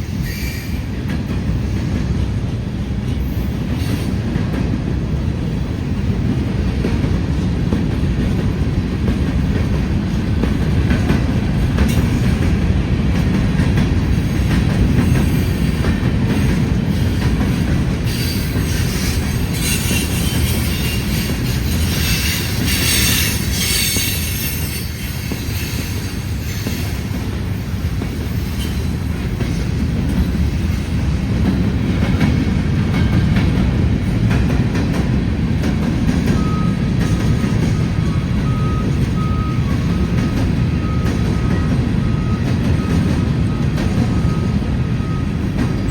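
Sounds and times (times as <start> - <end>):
freight train wheels rumbling: 0.0 - 45.9
metallic wheel squeal: 18.1 - 27.0.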